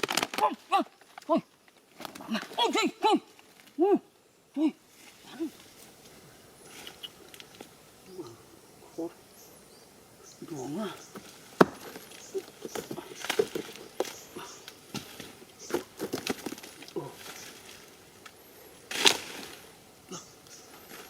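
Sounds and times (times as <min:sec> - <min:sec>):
wood cracking and snapping: 0:00.0 - 0:02.6, 0:11.2 - 0:17.6.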